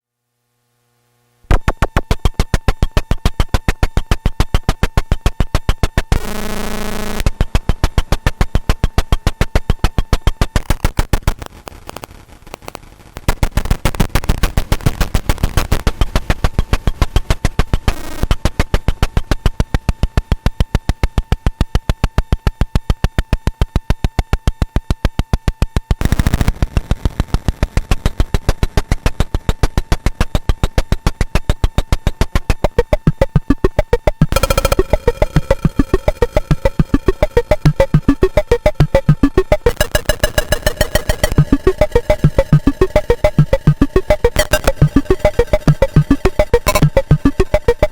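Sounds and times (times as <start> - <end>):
clicky electronic percussion hits: 7.2 - 10.6, 28.8 - 47.9
held buzzing tone: 30.4 - 47.9
steady high tone: 32.6 - 47.9.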